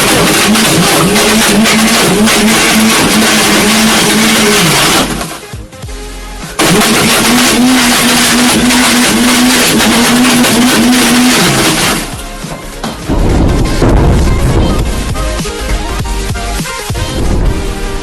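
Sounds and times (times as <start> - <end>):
electric blender motor running: 0.0 - 5.4, 6.6 - 12.2.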